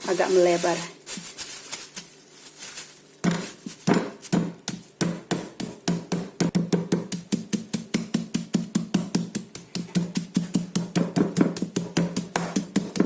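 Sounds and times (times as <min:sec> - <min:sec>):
meat being pounded on a board: 0:03.2 - 0:13.0.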